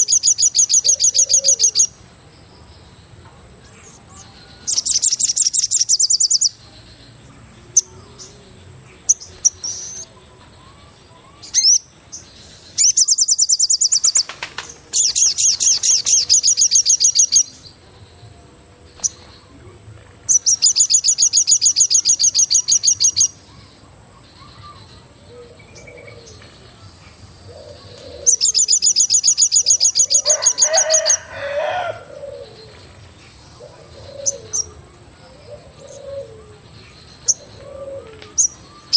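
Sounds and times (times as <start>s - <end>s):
bird high-pitched trills: 0.0s - 2.0s, 3.8s - 6.6s, 7.7s - 17.8s, 20.3s - 26.4s, 27.5s - 33.0s
bird cooing call: 0.8s - 1.9s, 24.5s - 26.4s, 27.5s - 29.0s, 29.6s - 32.9s, 33.5s - 38.9s.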